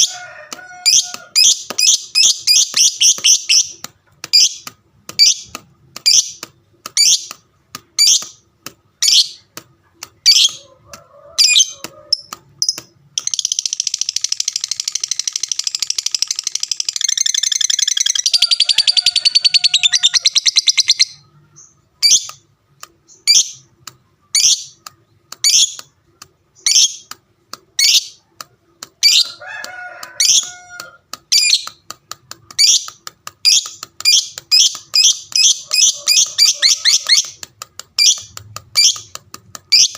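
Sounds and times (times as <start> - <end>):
bird chirping: 0.7 - 7.4, 8.0 - 8.4, 9.0 - 9.5, 10.1 - 10.8, 11.4 - 25.9, 26.5 - 28.2, 30.2 - 31.9, 32.5 - 39.9
bird chattering trill: 11.4 - 22.4, 32.6 - 39.9.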